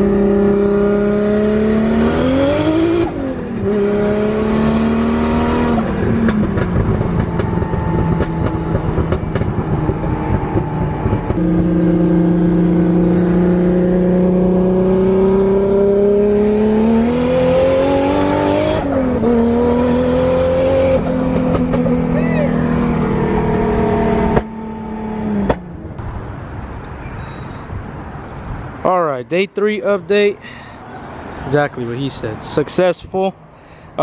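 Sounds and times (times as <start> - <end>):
car engine accelerating: 0.0 - 26.2.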